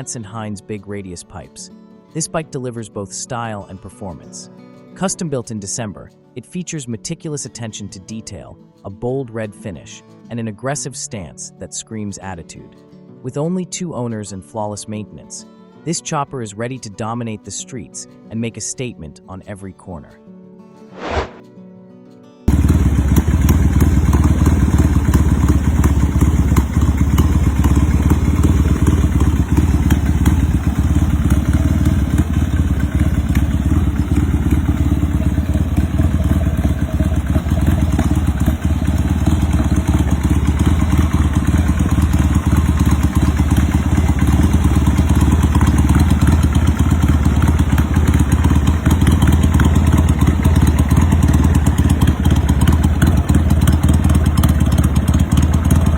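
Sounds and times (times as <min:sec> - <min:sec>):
motorcycle engine rumbling: 0:22.5 - 0:55.9.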